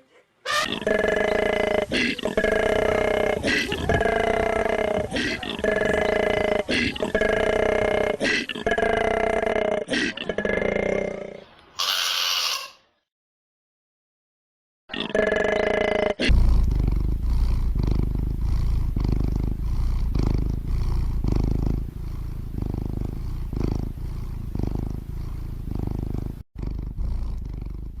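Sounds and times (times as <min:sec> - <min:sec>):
animal low pulsing rumble: 0:02.3 - 0:08.2, 0:16.3 - 0:28.0.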